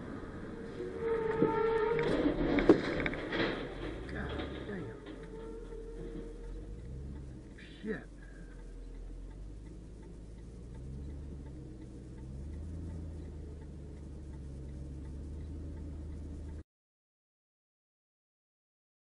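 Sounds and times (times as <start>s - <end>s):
engine and road noise drone: 0.0s - 16.6s
turn signal ticking: 3.9s - 16.6s.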